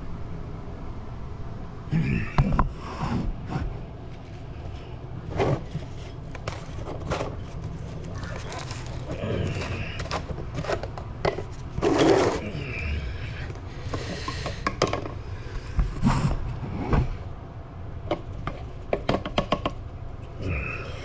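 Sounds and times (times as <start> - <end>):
steady low hum: 0.0 - 21.0
scraping and knocking: 3.5 - 12.8, 18.1 - 20.6.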